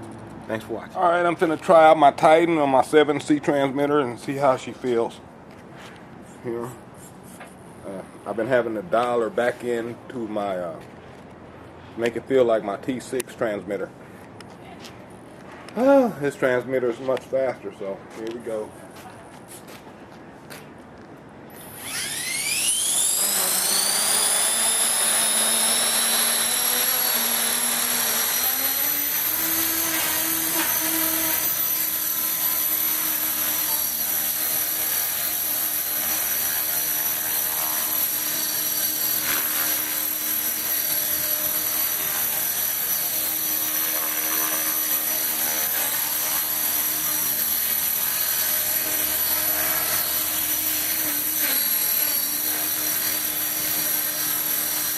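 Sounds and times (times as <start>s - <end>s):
model helicopter high whine: 21.5s - 54.9s.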